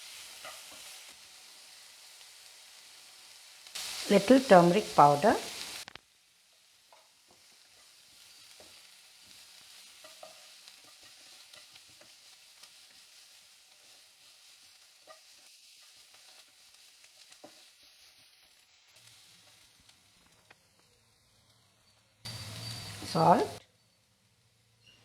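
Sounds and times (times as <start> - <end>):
onion sizzling in oil: 0.0 - 25.0.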